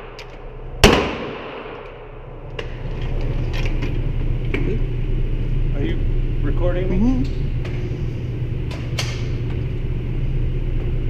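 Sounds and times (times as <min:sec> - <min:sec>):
low rumble: 0:00.0 - 0:11.0
gunshot echoing indoors: 0:00.8 - 0:02.4.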